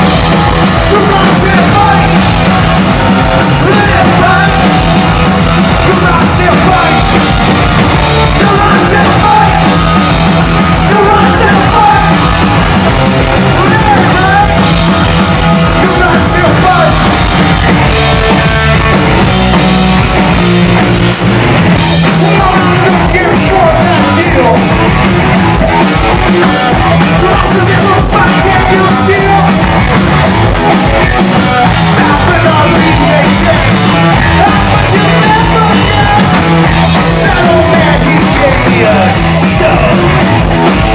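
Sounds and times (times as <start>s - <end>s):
live rock band playing: 0.0s - 40.9s
sung and shouted vocals: 0.9s - 2.3s, 3.4s - 4.9s, 8.2s - 9.9s, 10.7s - 12.3s.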